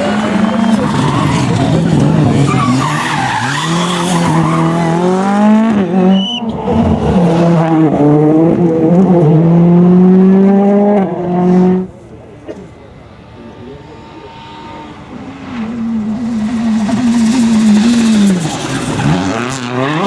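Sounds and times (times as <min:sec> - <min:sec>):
tyres squealing: 0:00.0 - 0:05.2
rally car engine revving: 0:00.0 - 0:20.0.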